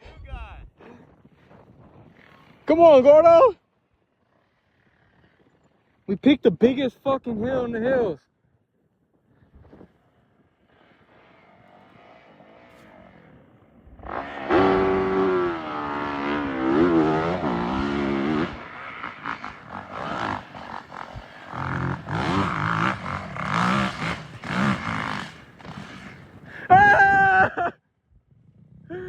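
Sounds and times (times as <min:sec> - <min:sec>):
dirt bike engine revving: 0:10.2 - 0:26.9.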